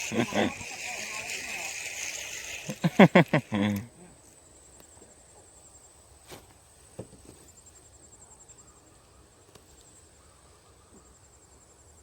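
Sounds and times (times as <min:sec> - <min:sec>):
insects chirping rapidly: 0:00.0 - 0:04.8
insects buzzing: 0:00.0 - 0:06.2.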